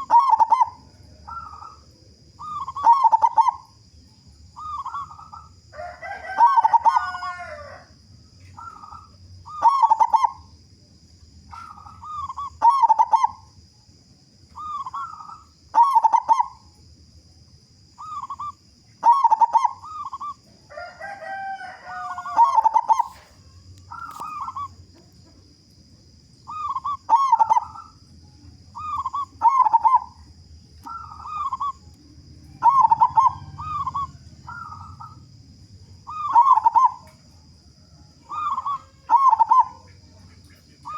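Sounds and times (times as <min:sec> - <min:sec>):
dove cooing: 0:00.0 - 0:03.8, 0:04.6 - 0:10.5, 0:11.5 - 0:13.6, 0:14.5 - 0:16.7, 0:18.0 - 0:25.4, 0:26.5 - 0:28.0, 0:28.7 - 0:40.9
harsh bird call: 0:04.6 - 0:07.8, 0:18.0 - 0:23.2, 0:32.6 - 0:35.2, 0:38.3 - 0:40.9.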